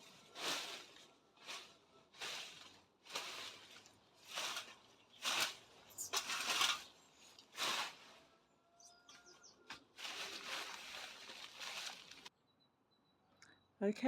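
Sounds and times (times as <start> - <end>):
rustling swishes: 0.0 - 8.3, 9.7 - 12.3.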